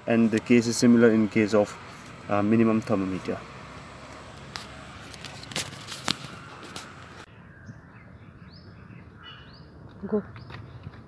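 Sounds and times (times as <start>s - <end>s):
small birds chirping: 0.3s - 11.0s.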